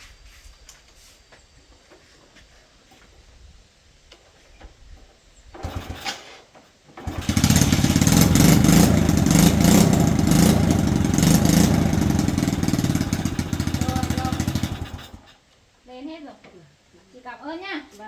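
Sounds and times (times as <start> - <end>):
motorbike engine cranking: 5.5 - 15.4
motorbike engine idling: 7.0 - 15.4.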